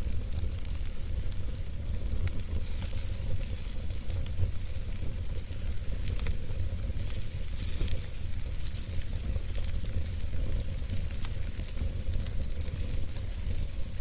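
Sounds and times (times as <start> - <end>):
fire crackles and pops: 0.0 - 14.0
wood fire burning: 0.0 - 14.0.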